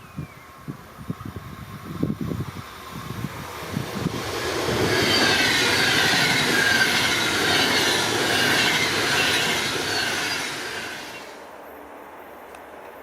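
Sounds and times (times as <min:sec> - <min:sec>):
train wheels rolling on rails: 0:00.2 - 0:11.6
high wheel squeal: 0:04.3 - 0:11.4.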